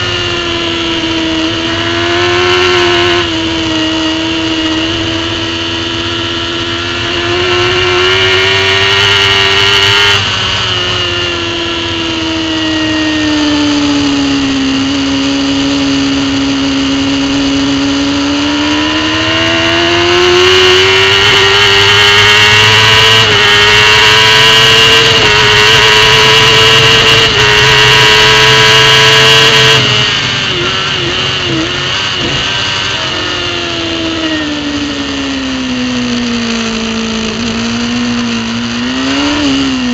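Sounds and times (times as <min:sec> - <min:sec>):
superbike engine at speed: 0:00.0 - 0:39.9.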